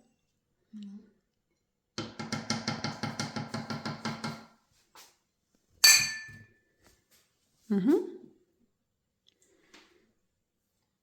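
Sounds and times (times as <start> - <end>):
metallic clink: 5.8 - 6.4.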